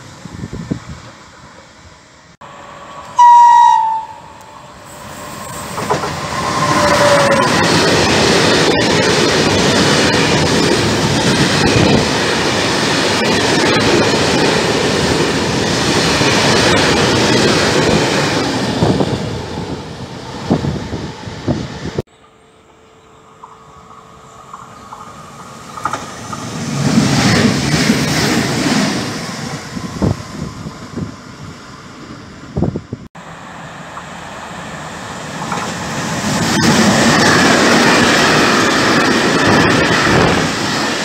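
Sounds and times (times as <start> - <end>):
locomotive horn blast: 3.0 - 5.0
freight train wheels clattering: 5.2 - 19.3, 35.4 - 41.0.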